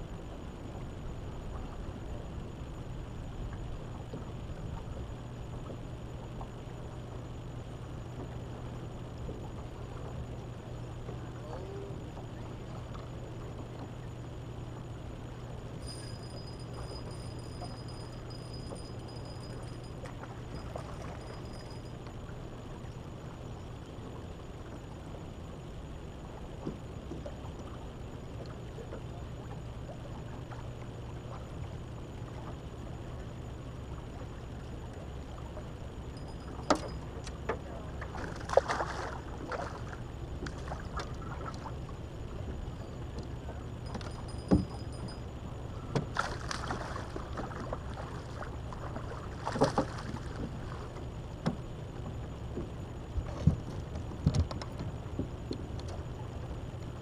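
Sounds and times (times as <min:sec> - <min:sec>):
knocks and clicks in boat: 0:03.4 - 0:06.7, 0:08.0 - 0:14.9, 0:15.8 - 0:22.3, 0:26.4 - 0:33.4, 0:34.1 - 0:57.0
wind rumble on microphone: 0:37.6 - 0:57.0.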